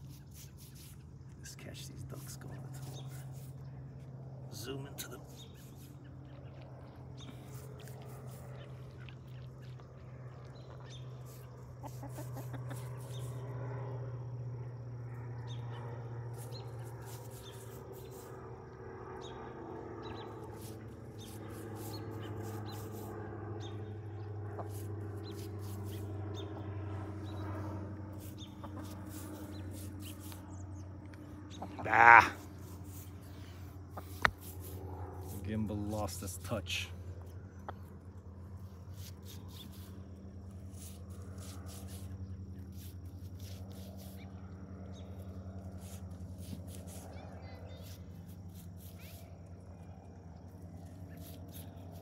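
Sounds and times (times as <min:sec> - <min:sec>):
low hum: 0:00.0 - 0:52.0
ducks and chickens calling: 0:11.4 - 0:13.4, 0:24.5 - 0:26.0, 0:28.3 - 0:30.4, 0:31.5 - 0:33.0.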